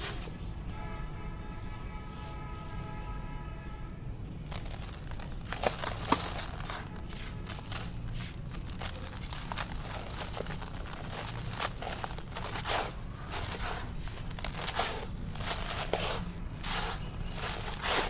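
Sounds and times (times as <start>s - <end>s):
concrete crumbling and crunching: 4.4s - 18.0s.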